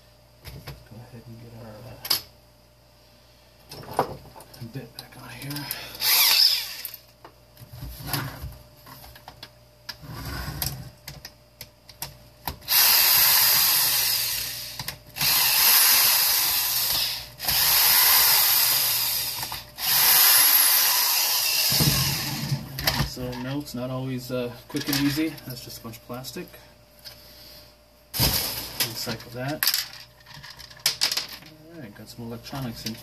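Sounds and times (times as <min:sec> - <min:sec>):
power drill running: 0:06.0 - 0:07.0, 0:12.7 - 0:22.6.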